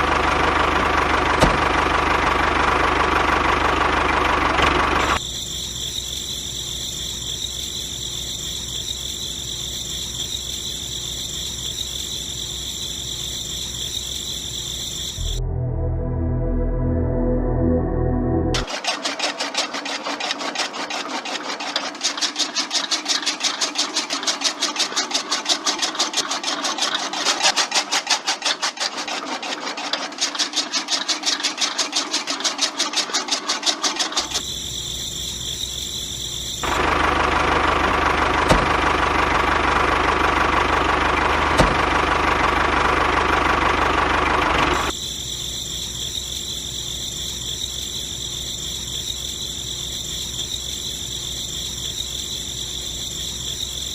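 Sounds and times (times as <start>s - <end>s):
small motor running: 18.6s - 53.9s.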